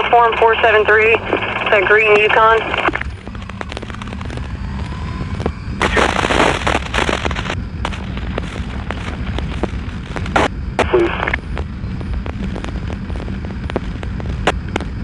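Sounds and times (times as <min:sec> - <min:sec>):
police scanner static and clicks: 0:00.0 - 0:04.5, 0:05.4 - 0:15.0
motorcycle engine rumble: 0:03.0 - 0:10.8
wind while riding: 0:03.0 - 0:10.8, 0:11.4 - 0:15.0.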